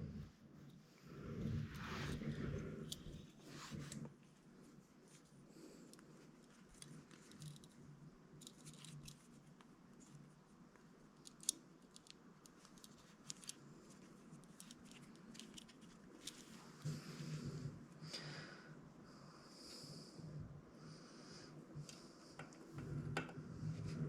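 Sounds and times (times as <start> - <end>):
faint small clicks and ticks: 5.1 - 16.9.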